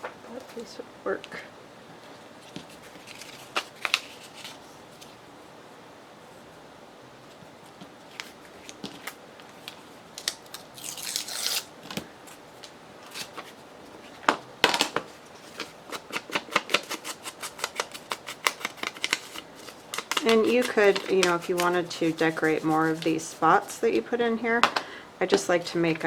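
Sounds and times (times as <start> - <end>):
paper rasping: 15.5 - 23.8
scissors snipping paper: 15.6 - 23.8.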